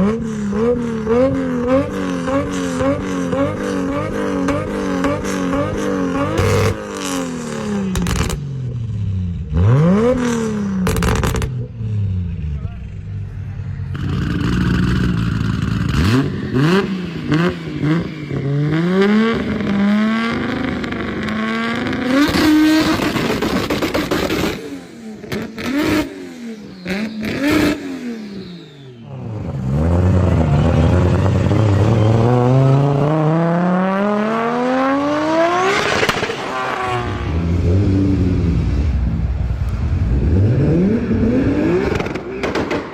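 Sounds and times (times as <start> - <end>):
car engine revving: 0.0 - 42.9
exhaust pops: 7.9 - 8.4, 10.8 - 11.8, 35.7 - 36.5, 41.8 - 42.9.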